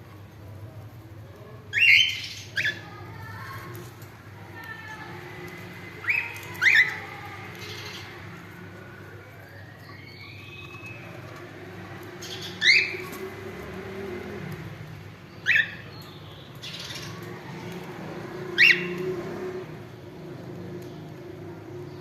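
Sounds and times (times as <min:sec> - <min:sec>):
cockatiel chirps: 0:18.6 - 0:19.0.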